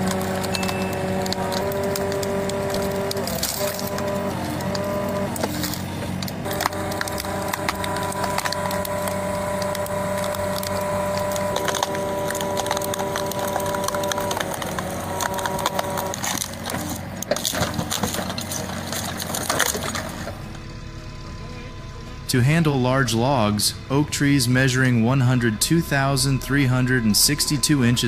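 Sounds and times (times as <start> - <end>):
wood cracking and splintering: 0.0 - 20.6
machine whine: 0.0 - 28.0.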